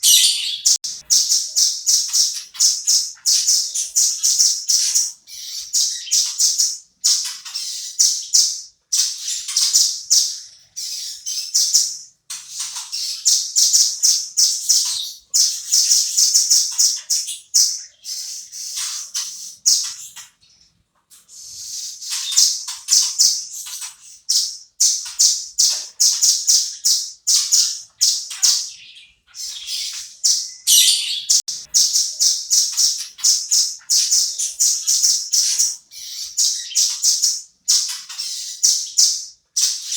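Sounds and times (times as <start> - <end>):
bird singing high sharp notes: 0.0 - 6.6, 26.1 - 39.9.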